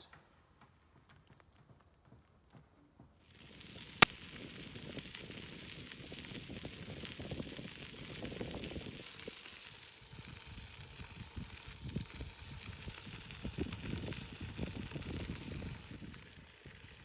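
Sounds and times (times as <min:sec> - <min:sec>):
wind buffeting microphone: 0:11.2 - 0:16.8.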